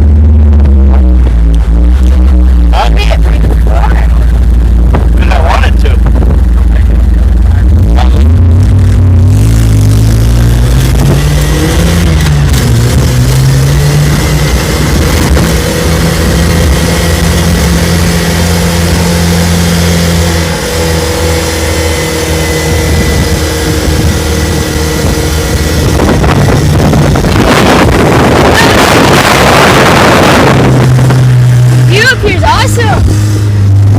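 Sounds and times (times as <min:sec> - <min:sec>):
vehicle engine accelerating: 0:00.0 - 0:33.9.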